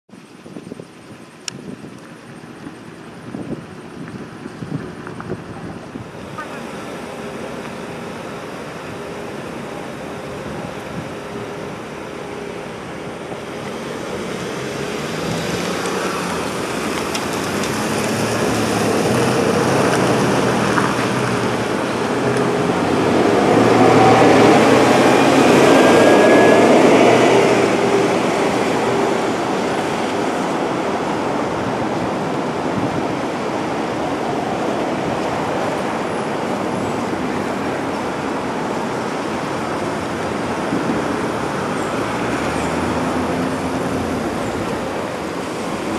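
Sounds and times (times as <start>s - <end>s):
street traffic: 0.1s - 45.9s
vehicle passing close by: 10.2s - 45.9s.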